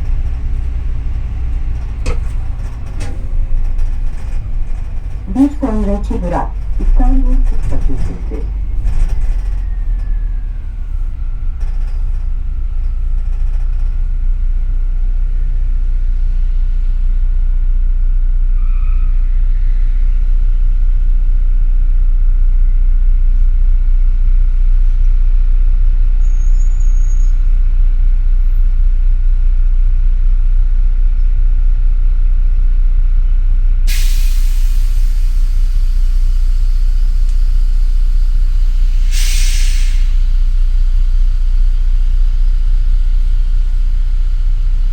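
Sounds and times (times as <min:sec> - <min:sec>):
bus engine rumble: 0:00.0 - 0:44.9
loud air hiss: 0:38.7 - 0:40.4.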